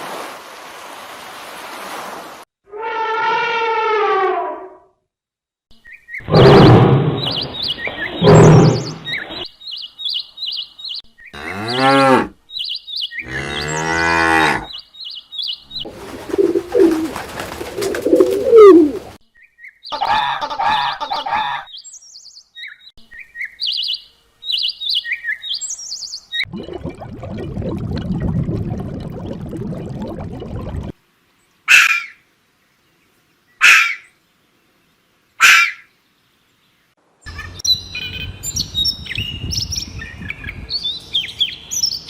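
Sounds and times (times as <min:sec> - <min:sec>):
small birds chirping: 0:07.2 - 0:11.7, 0:12.5 - 0:13.9, 0:14.6 - 0:20.1, 0:21.7 - 0:26.5, 0:31.3 - 0:42.0
cattle mooing: 0:13.3 - 0:14.7.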